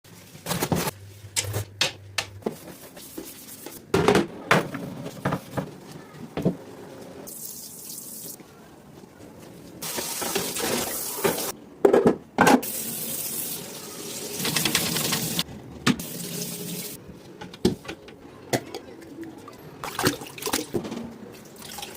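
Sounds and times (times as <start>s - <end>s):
items knocking and clattering: 3.9s - 6.7s, 11.2s - 12.6s
water running from tap: 9.8s - 11.5s, 12.6s - 15.4s, 16.0s - 17.0s.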